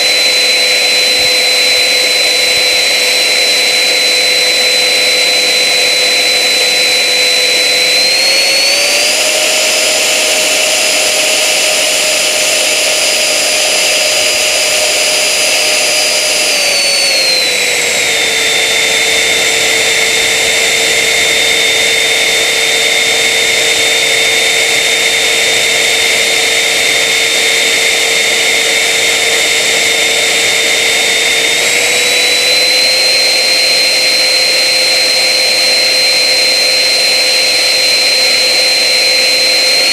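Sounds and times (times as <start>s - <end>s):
jet engine whine and roar: 0.0s - 39.9s.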